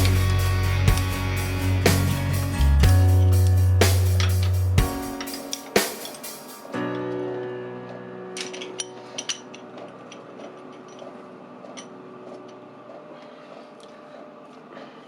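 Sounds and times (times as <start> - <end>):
sustained music chord: 0.0 - 5.8.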